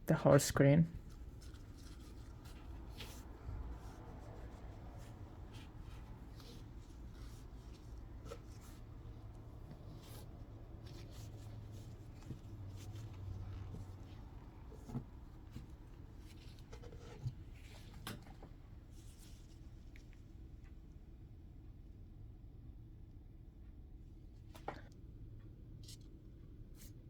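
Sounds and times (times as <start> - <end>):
low steady hum: 0.0 - 27.0
tissue rubbing glass screen: 1.0 - 17.9.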